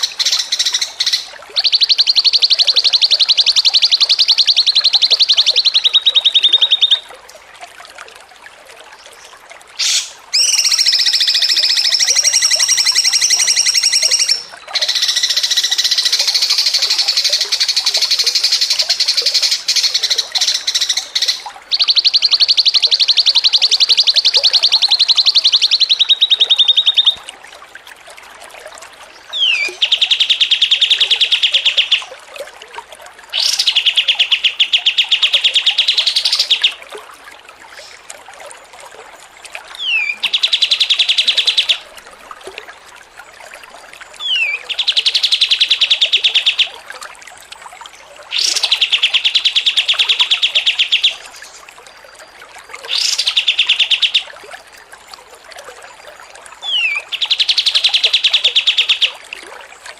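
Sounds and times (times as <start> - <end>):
songbird trilling chatter: 9.8 - 27.2, 39.8 - 41.8, 56.7 - 59.1.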